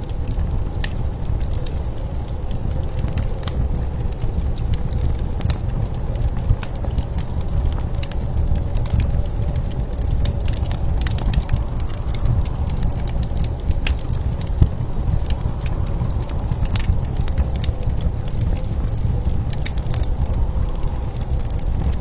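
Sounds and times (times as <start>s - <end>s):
blizzard wind rumble: 0.0s - 22.0s
wood fire crackling: 0.0s - 22.0s.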